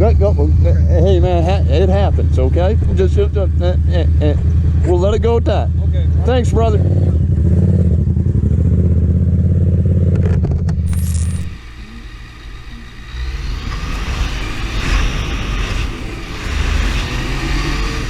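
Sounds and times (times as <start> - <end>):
motorcycle engine idling: 0.0 - 10.2
riding noise rush: 10.9 - 18.0.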